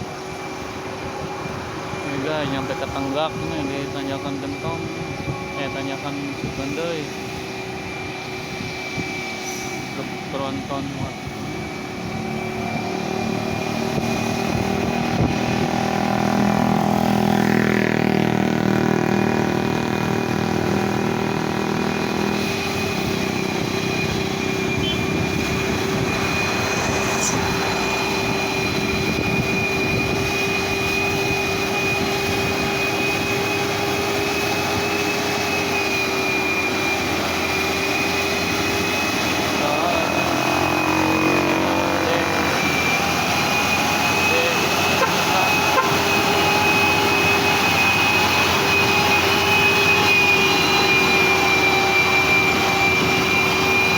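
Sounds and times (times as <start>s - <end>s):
engine drone with high whine: 0.0s - 53.9s
vehicle passing: 24.7s - 29.5s.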